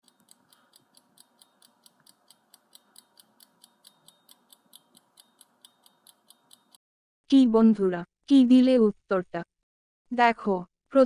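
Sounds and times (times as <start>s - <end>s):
faint clock ticking: 0.0s - 6.8s.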